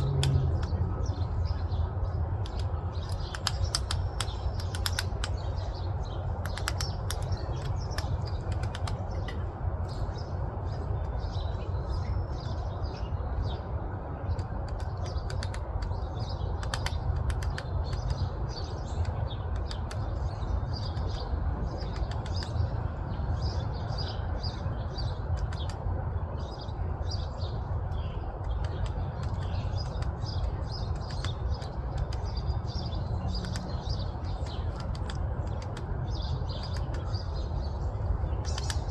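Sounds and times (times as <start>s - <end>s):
low rumble: 0.0s - 3.2s
small birds chirping: 0.0s - 38.9s
sharp ticks: 2.4s - 9.4s, 14.3s - 22.6s, 27.8s - 37.4s, 38.2s - 38.9s.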